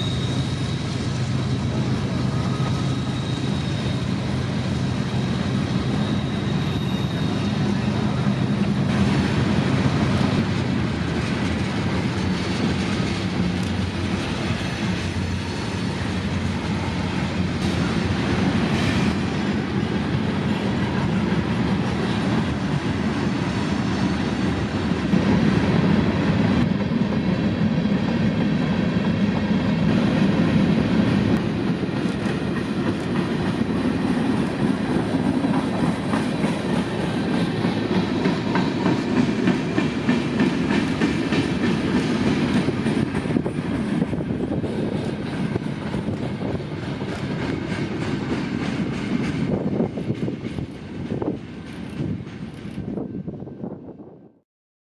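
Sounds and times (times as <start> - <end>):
wheels clicking on rail joints: 0.0 - 27.8, 29.0 - 53.0
freight train rumbling: 0.0 - 54.4.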